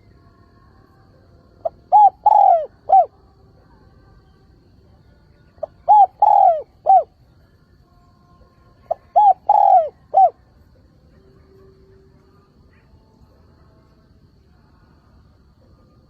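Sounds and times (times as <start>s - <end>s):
dove cooing: 1.6s - 3.1s, 5.6s - 7.2s, 8.9s - 10.4s.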